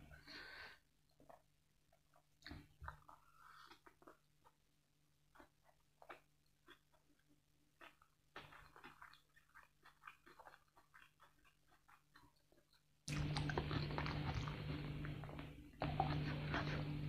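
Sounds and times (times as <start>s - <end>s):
chewing food: 0.2s - 17.0s.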